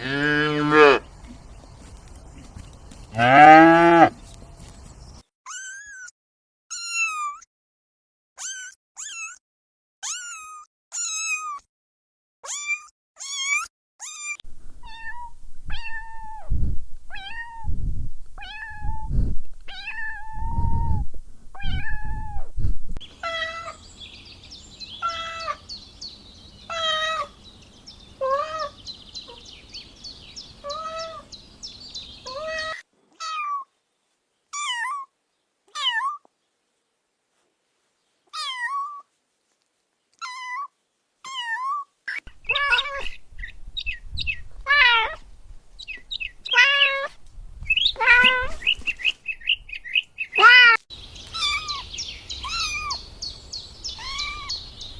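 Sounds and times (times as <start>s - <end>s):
kittens meowing: 26.7s - 27.4s, 30.6s - 31.3s, 41.3s - 43.2s, 44.6s - 45.2s, 46.5s - 47.2s, 47.9s - 48.6s, 50.4s - 53.1s, 53.8s - 54.6s.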